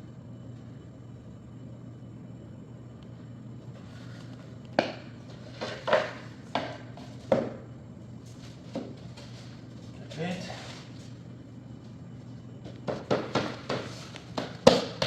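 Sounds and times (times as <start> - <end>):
hard objects knocking on laminate floor: 5.6 - 7.6, 12.8 - 15.0.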